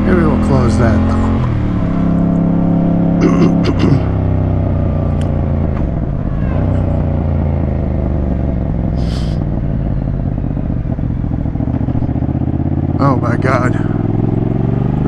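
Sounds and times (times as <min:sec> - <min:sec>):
motorcycle engine at low revs: 0:00.0 - 0:15.0.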